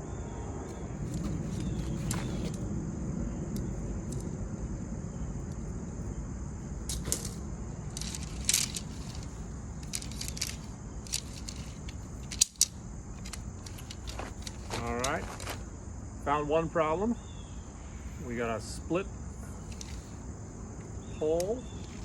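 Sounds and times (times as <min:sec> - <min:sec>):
metal tent poles clinking: 0:06.9 - 0:15.6.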